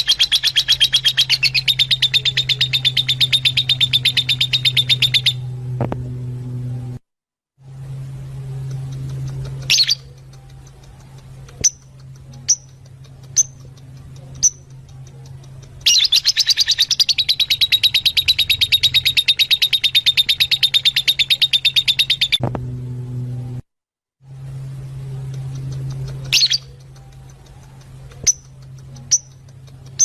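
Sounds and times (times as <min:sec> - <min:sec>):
lovebirds chirping: 0:00.0 - 0:05.4, 0:08.7 - 0:22.4, 0:25.3 - 0:30.0
low steady hum: 0:00.0 - 0:07.0, 0:07.6 - 0:30.0.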